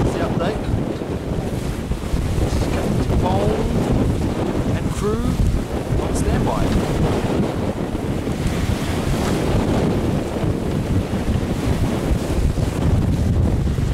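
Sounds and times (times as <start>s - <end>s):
water rushing along hull: 0.0s - 13.9s
wind buffeting microphone: 0.0s - 13.9s.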